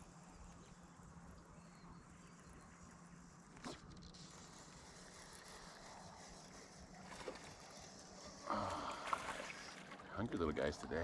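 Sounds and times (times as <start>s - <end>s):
faint water sounds: 2.8s - 11.0s.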